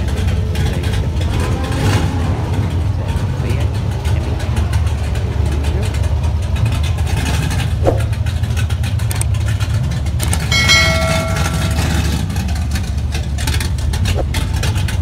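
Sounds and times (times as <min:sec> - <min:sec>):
car engine idling: 0:00.0 - 0:15.0
short ringing tone: 0:10.5 - 0:12.4.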